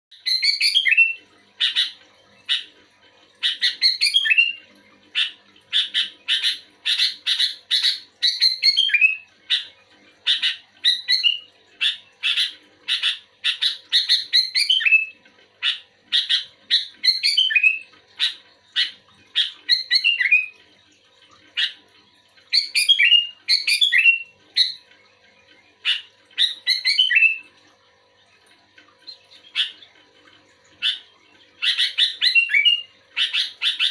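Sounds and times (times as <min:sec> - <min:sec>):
bulbul calling: 0:29.1 - 0:29.9.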